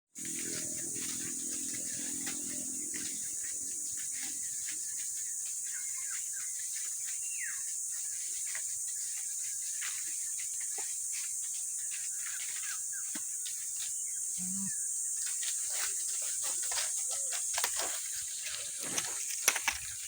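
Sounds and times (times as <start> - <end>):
bird chirps: 0.2 - 8.3
insects chorus: 0.2 - 20.0.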